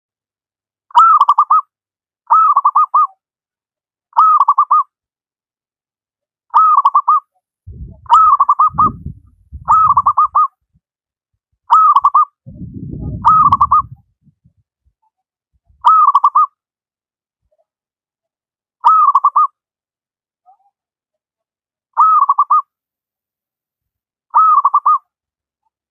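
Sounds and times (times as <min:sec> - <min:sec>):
low rumble: 0:07.7 - 0:10.4, 0:12.5 - 0:14.6
dove cooing: 0:07.7 - 0:10.5, 0:11.8 - 0:14.0.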